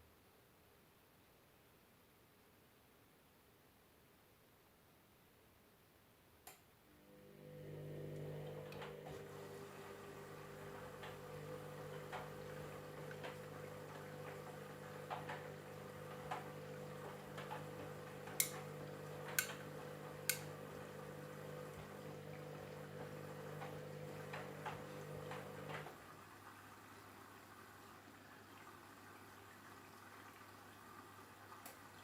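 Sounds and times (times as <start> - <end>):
washing machine motor hum: 6.9 - 32.0.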